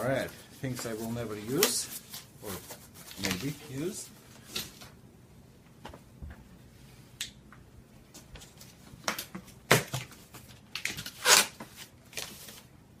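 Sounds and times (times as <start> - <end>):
packaging crinkling and rustling: 0.1 - 4.9, 8.4 - 12.7.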